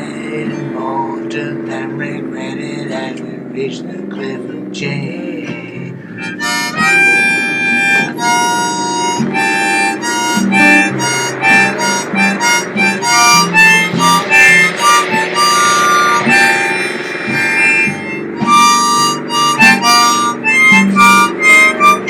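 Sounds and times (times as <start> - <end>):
band with guitar: 0.0 - 22.0
harmonica playing quick notes: 5.9 - 22.0.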